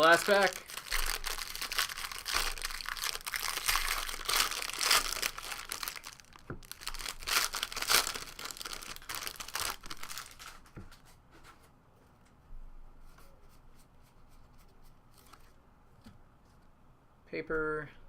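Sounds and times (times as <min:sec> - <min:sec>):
plastic wrapper crinkling: 0:00.0 - 0:10.8.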